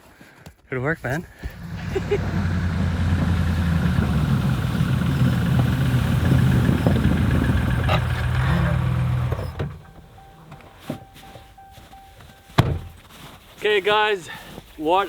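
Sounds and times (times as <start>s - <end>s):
engine idling: 1.4s - 10.5s.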